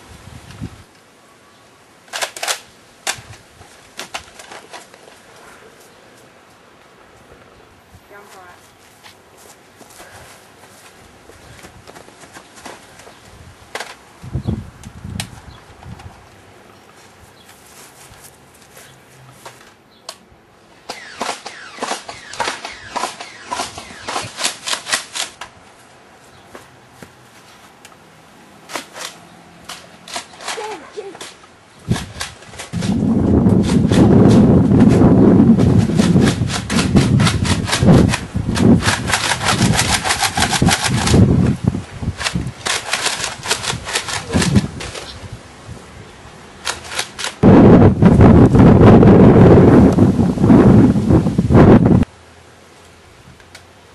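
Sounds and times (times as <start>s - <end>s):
toy blasters clicking and snapping: 2.1s - 3.4s, 4.0s - 5.0s, 13.7s - 14.0s, 20.9s - 25.5s, 28.7s - 34.5s, 35.6s - 41.5s, 42.1s - 45.2s, 46.6s - 47.4s
toy dart blasters firing: 20.9s - 25.1s.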